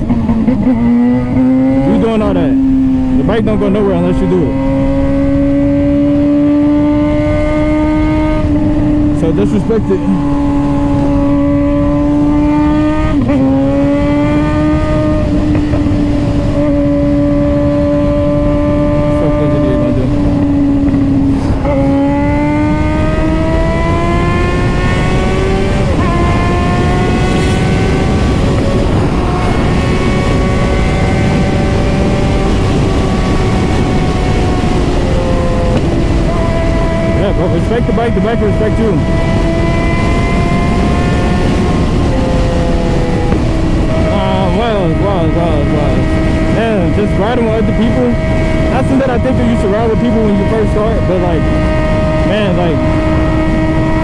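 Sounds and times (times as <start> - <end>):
motorcycle engine at high revs: 0.0 - 54.0
steady low rushing noise: 0.0 - 54.0.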